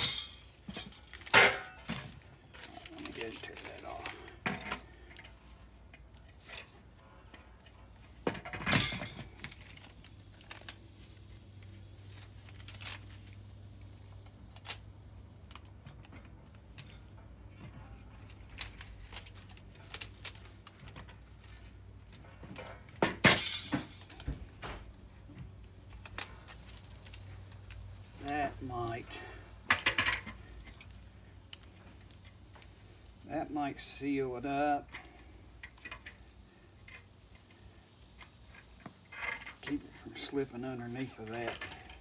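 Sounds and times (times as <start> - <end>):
tape ripping and crackling: 18.1 - 22.1, 25.9 - 28.4.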